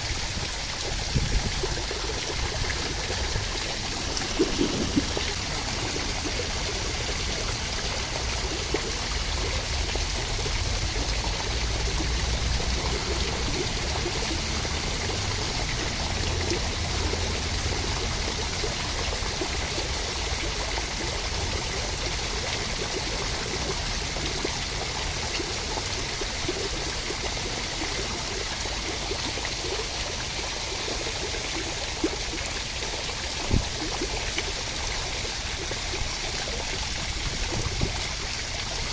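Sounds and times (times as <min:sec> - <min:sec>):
water rushing: 0:00.0 - 0:38.9.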